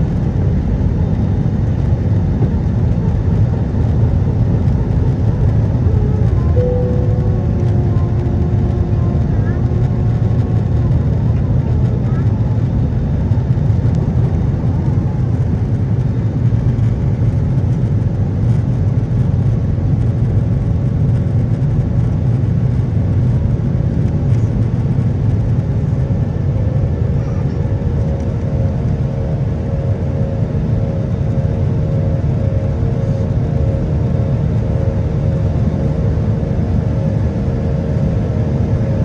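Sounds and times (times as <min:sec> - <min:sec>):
airplane cabin engine rumble: 0:00.0 - 0:39.0
faint steady tone: 0:06.0 - 0:10.4.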